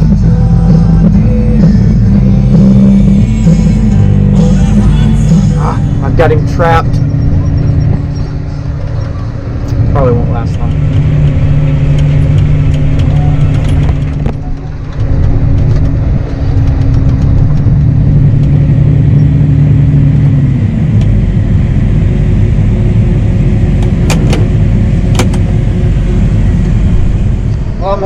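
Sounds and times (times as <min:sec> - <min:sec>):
heavy diesel engine running: 0:00.0 - 0:28.0
sharp clicks: 0:10.5 - 0:17.7.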